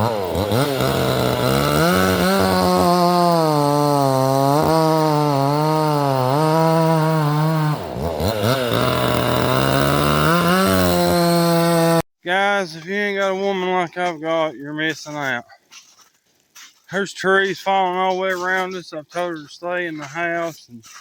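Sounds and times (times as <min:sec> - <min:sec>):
chainsaw cutting wood: 0:00.0 - 0:12.1.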